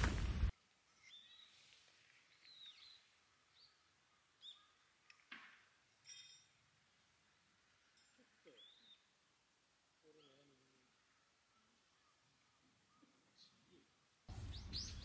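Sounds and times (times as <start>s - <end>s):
bird chirps: 0.9s - 1.7s, 2.3s - 5.2s, 8.4s - 9.2s, 10.0s - 15.0s.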